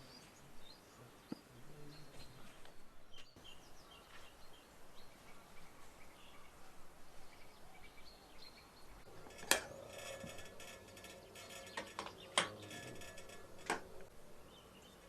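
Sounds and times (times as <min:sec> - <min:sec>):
metallic ring: 0:09.2 - 0:14.1.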